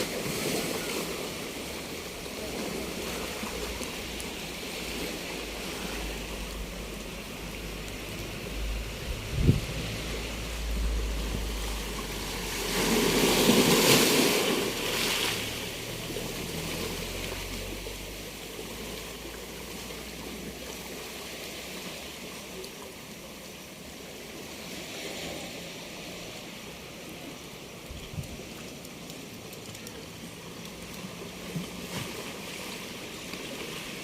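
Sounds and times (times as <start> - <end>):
surf washing: 0.0 - 34.0
sea wave breaking on beach: 8.0 - 19.1.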